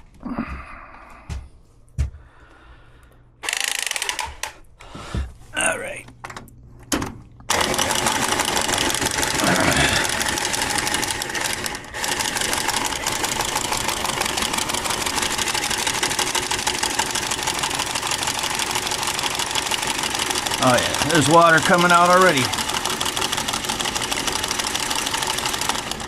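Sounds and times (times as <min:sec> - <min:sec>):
power saw cutting pipe: 0:07.5 - 0:26.0.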